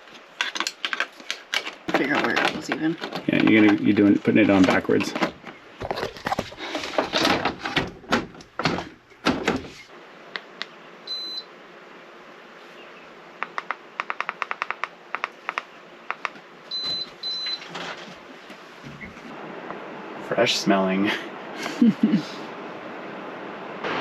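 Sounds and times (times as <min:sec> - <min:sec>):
handling knocks and rustles: 0:00.0 - 0:09.9
heat pump unit beeping: 0:11.0 - 0:11.6, 0:13.5 - 0:17.8.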